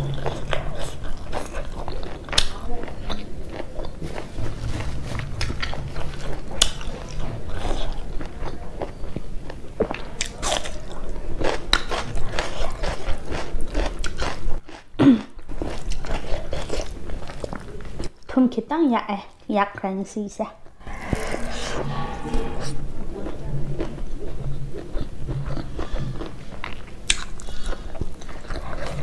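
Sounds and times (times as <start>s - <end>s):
person chewing food: 0.0s - 10.8s, 15.6s - 18.1s, 24.8s - 29.0s.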